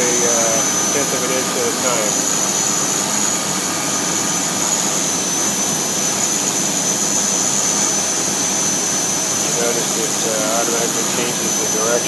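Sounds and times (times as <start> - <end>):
router spindle cutting with high whine: 0.0 - 12.0.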